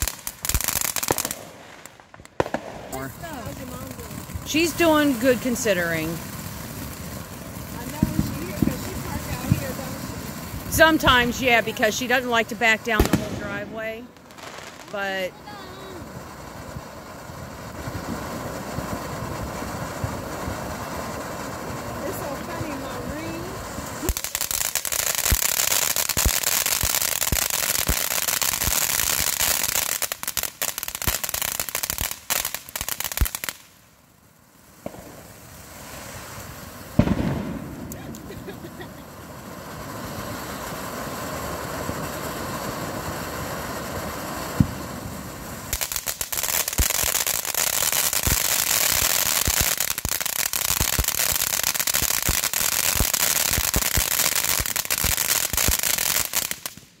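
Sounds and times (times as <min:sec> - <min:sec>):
firework fountains crackling: 0:00.0 - 0:57.0
firework hiss: 0:00.0 - 0:57.0.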